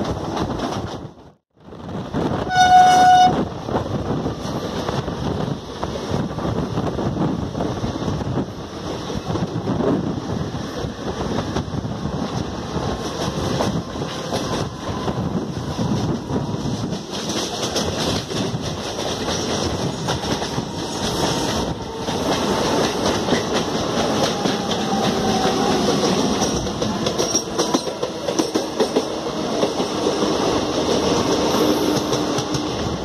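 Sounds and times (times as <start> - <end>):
train rumble and rail clatter: 0.0 - 33.0
train horn blast: 2.5 - 3.5.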